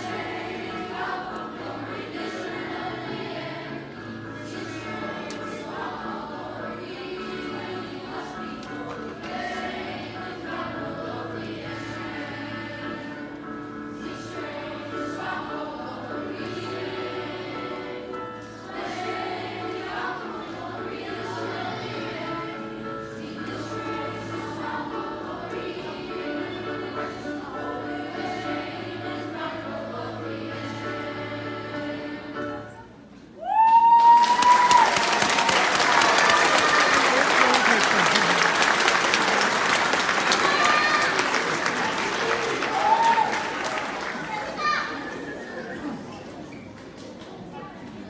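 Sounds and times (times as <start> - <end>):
choir singing held chords: 0.0 - 33.0, 34.5 - 44.3
audience applause and cheering: 33.4 - 45.4
high cheer: 33.4 - 45.5.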